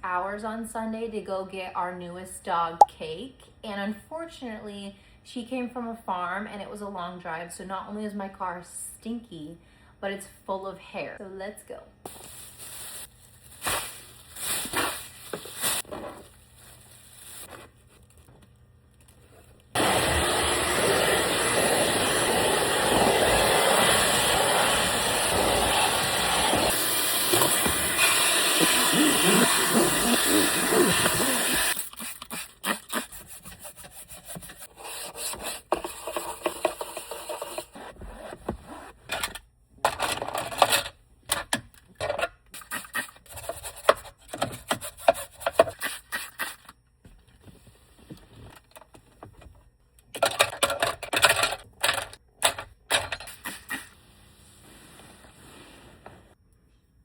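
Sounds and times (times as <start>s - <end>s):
vacuum cleaner running: 19.8s - 31.8s
scratchy rubbing and brushing: 28.7s - 38.3s.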